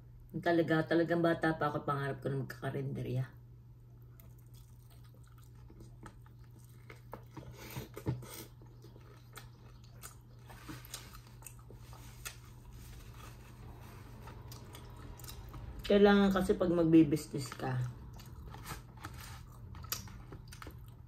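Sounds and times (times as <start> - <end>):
steady low hum: 0.0 - 21.0
person chewing and biting food: 4.0 - 15.9, 18.0 - 21.0.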